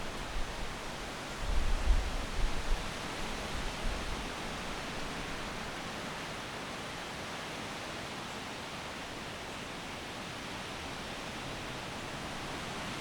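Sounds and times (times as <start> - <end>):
wind rustling leaves: 0.0 - 13.0
wind buffeting microphone: 1.4 - 5.4.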